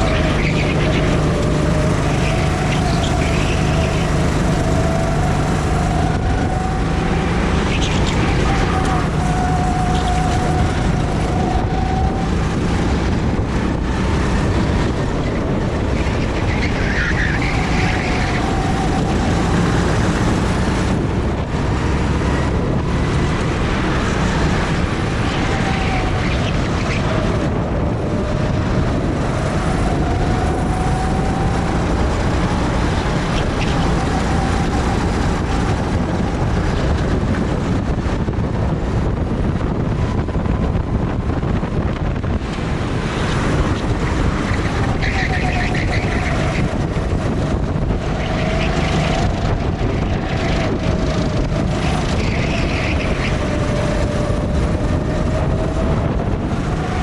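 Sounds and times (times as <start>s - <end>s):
go-kart engine whine: 0.0s - 57.0s
wind noise on microphone: 0.0s - 57.0s.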